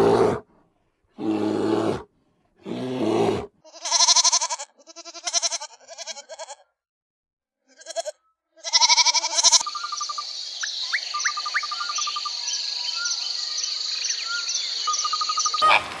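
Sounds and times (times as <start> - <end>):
wavering bleats: 2.7 - 6.7, 7.7 - 9.8
regular chirps: 9.5 - 15.8.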